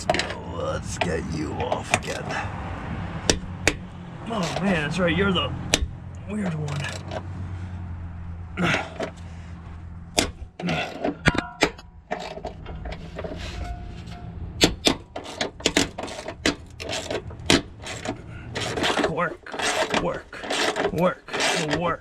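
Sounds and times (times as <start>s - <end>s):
tools clanking against metal: 0.0s - 2.4s, 3.3s - 4.9s, 5.7s - 7.3s, 10.2s - 22.0s
low hum: 11.2s - 15.0s.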